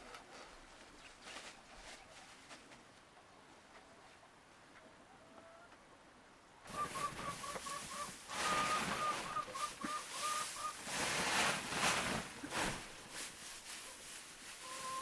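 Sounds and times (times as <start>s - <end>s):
bird's short repeated call: 6.7s - 10.8s.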